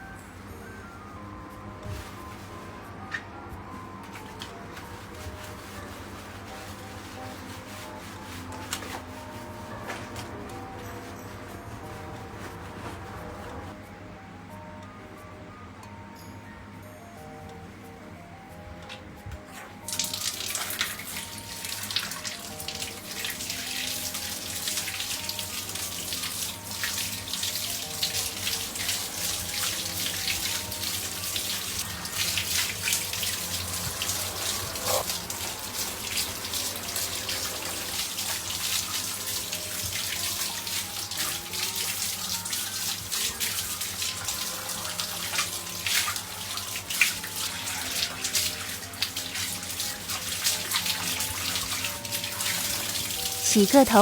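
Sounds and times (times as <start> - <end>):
light background music: 0.0 - 54.0
running water hissing: 19.9 - 54.0.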